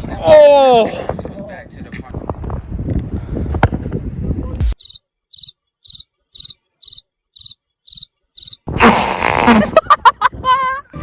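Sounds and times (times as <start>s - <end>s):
outdoor noise: 0.0s - 11.0s
crickets chirping: 4.8s - 8.7s.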